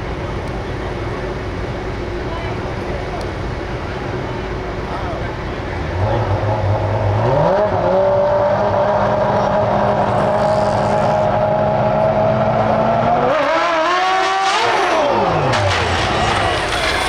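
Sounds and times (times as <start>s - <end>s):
motorcycle engine revving: 5.8s - 17.0s.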